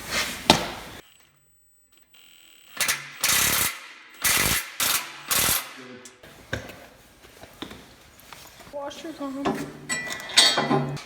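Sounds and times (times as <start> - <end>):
ratchet wrench clicking: 2.8 - 5.7.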